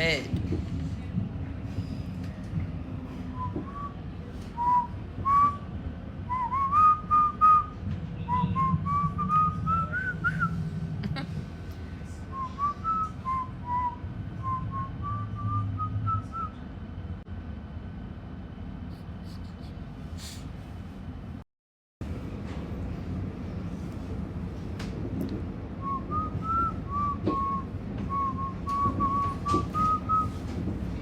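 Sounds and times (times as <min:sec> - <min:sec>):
train rumbling: 0:00.0 - 0:21.4, 0:22.0 - 0:31.0
woman whistling a tune: 0:04.6 - 0:05.6, 0:06.3 - 0:07.7, 0:08.3 - 0:10.6, 0:12.3 - 0:16.6, 0:25.8 - 0:30.4.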